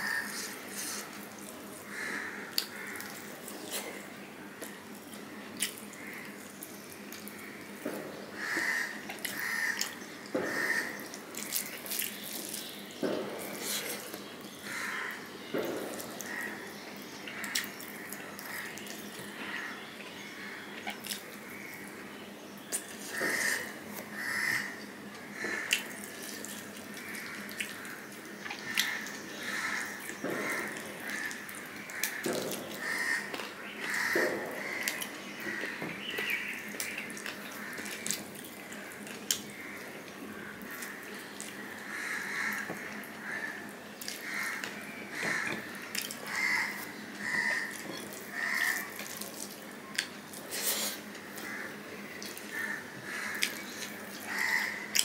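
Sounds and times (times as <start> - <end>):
chewing and mouth smacking: 4.6 - 7.3, 36.7 - 39.5.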